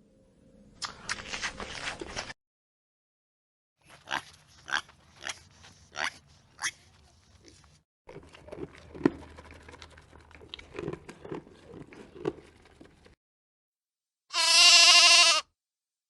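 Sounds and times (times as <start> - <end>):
loud wavering bleat: 14.3 - 15.5.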